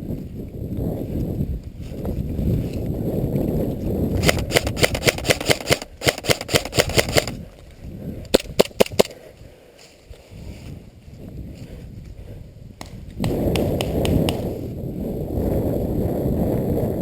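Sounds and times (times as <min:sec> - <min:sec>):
airsoft rifle shots: 0:04.2 - 0:07.4, 0:08.3 - 0:09.2.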